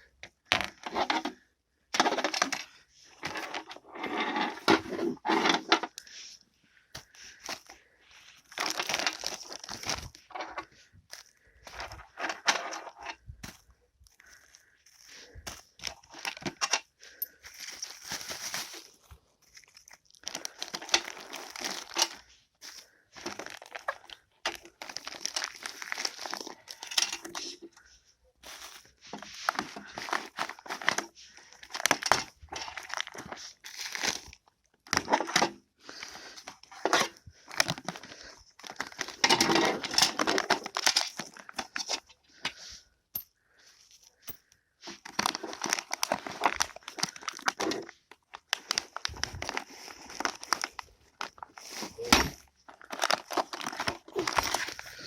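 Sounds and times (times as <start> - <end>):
crinkling and rustling: 0.0 - 55.0.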